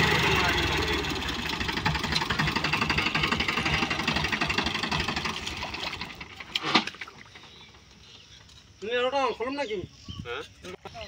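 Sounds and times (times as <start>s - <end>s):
tractor diesel engine knocking: 0.0s - 6.5s.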